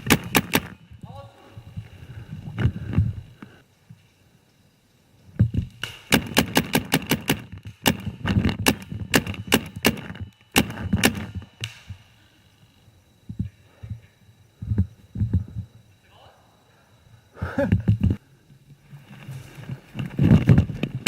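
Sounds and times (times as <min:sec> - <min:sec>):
paintball markers firing: 0:00.0 - 0:00.8, 0:05.8 - 0:11.9.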